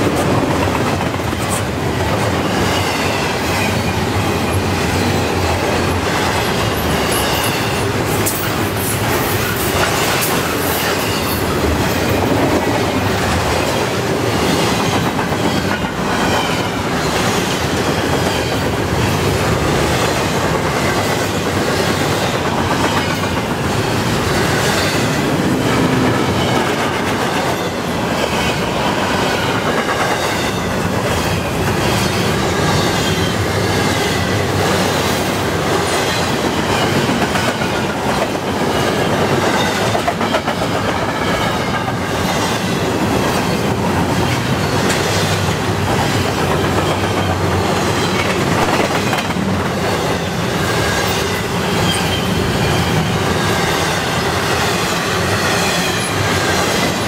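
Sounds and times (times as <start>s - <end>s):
clickety-clack over rail joints: 0.0s - 57.0s
steel wheels rumbling on rail: 0.0s - 57.0s
faint high wheel squeal: 51.8s - 53.0s.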